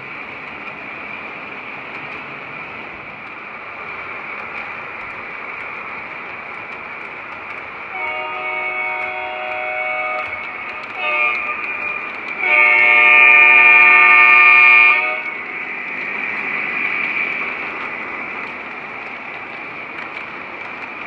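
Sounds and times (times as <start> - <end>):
model locomotive horn blasts: 7.9 - 15.4.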